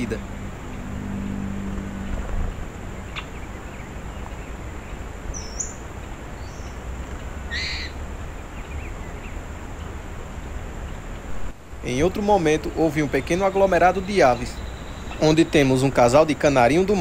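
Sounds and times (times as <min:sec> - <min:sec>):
low hiss and rumble: 0:00.0 - 0:17.0
high bird calls: 0:01.6 - 0:06.8, 0:07.4 - 0:10.0, 0:12.0 - 0:16.2.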